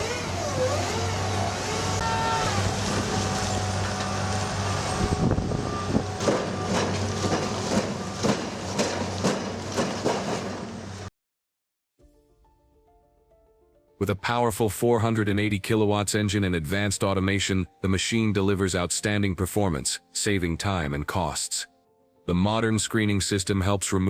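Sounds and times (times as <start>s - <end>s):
diesel engine running: 0.0s - 11.1s.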